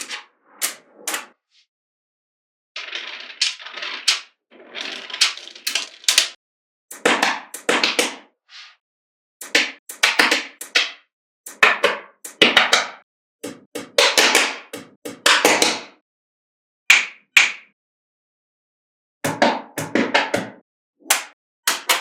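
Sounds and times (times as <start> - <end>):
magnetic balls clicking together: 4.8 - 6.4.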